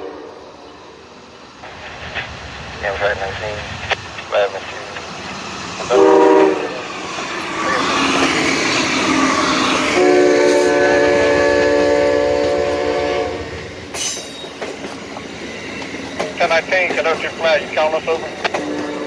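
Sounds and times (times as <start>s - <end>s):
locomotive engine and wheel noise: 0.0s - 19.0s
train horn: 5.9s - 6.9s, 9.8s - 13.6s, 18.5s - 19.0s
train wheels clacking: 13.8s - 19.0s.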